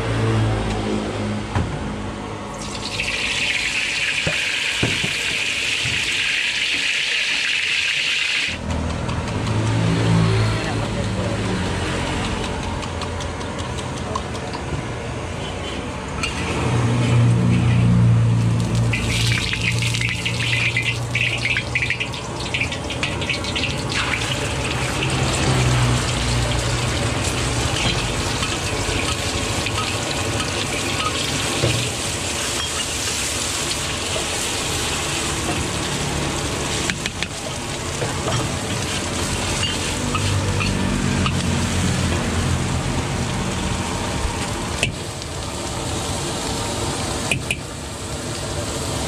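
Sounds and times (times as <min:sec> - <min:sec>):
eggs sizzling in a wok: 0:02.6 - 0:08.9, 0:16.2 - 0:49.0.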